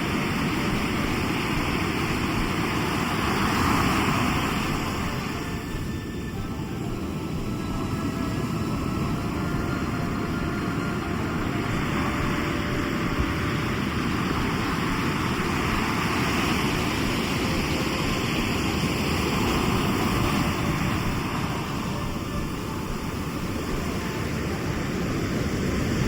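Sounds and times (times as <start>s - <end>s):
sea waves breaking on shore: 0.0s - 26.0s.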